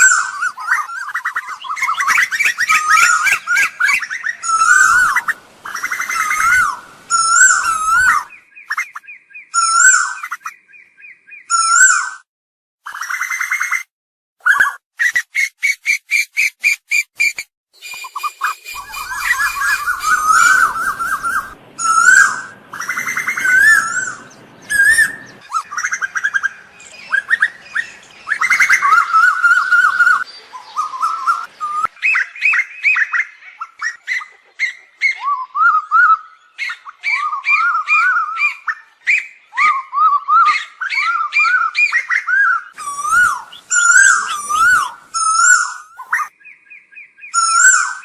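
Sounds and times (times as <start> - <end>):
koels calling: 0.0 - 8.9, 18.1 - 46.4.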